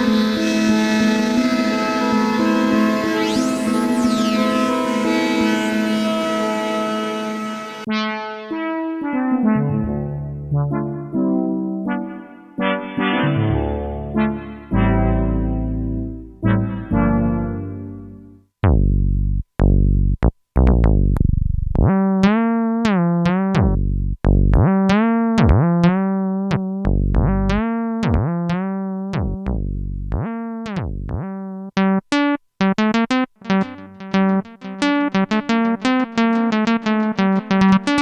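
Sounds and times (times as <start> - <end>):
synthesizer playing: 0.0 - 8.6, 20.7 - 23.8, 27.2 - 32.0, 32.6 - 38.0.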